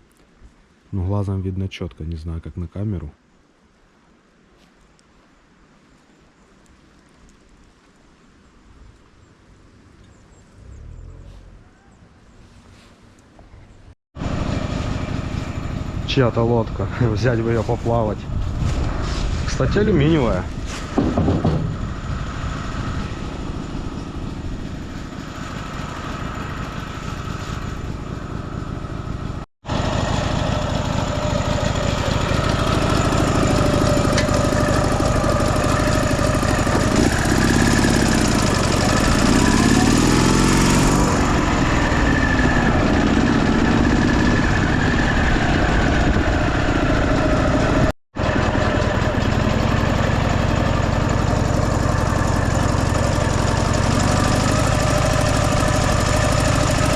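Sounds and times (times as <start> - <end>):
motorcycle engine running: 21.0 - 56.9.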